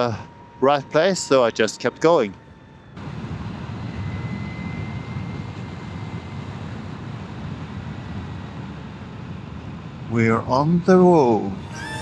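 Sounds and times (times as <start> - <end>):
wind and road rush: 0.0 - 12.0
faint high whine: 11.4 - 12.0.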